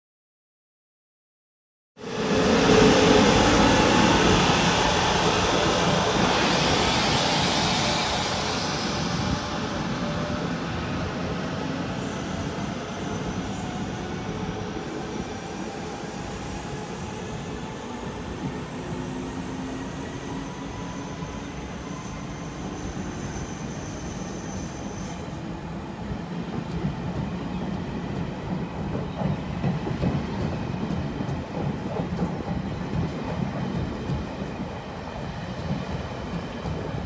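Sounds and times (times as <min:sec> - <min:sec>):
train running on track: 0:02.0 - 0:37.0
wheels squealing on rails: 0:02.1 - 0:30.8.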